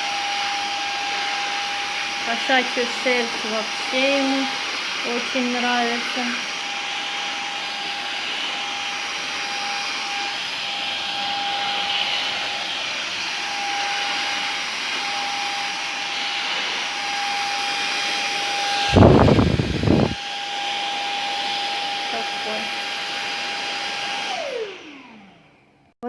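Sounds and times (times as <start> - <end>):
vacuum cleaner whining: 0.0 - 25.9
loud low rumble: 18.9 - 20.2.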